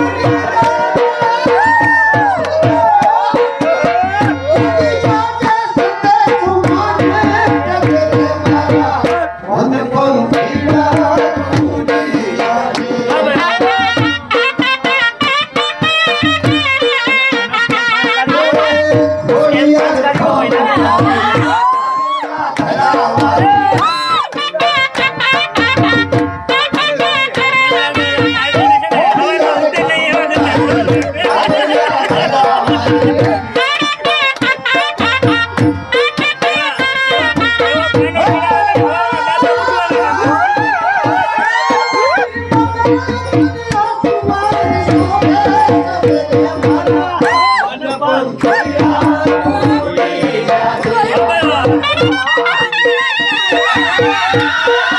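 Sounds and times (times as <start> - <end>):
fast drum beat: 0.0 - 54.9.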